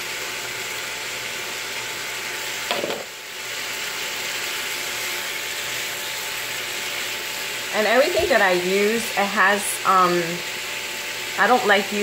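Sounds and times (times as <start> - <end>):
meat sizzling in a pan: 0.0 - 12.0
onions clattering into pan: 2.7 - 3.2.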